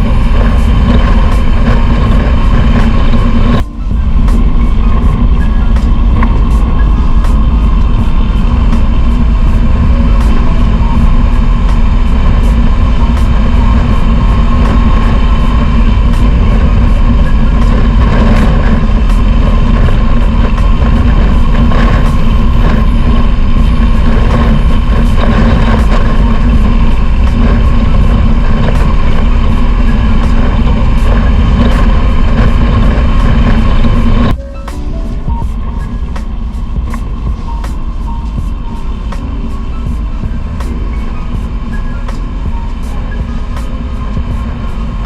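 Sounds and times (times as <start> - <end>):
wind rumble on microphone: 0.0 - 34.4, 35.0 - 45.0
motorcycle engine: 0.0 - 45.0.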